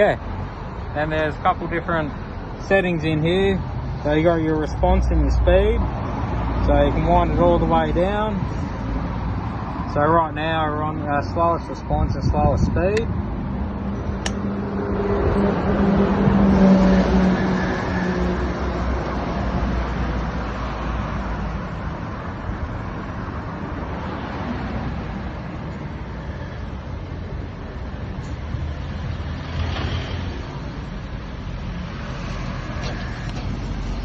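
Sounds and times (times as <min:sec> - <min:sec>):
rushing noise of moving bike: 0:03.6 - 0:34.0.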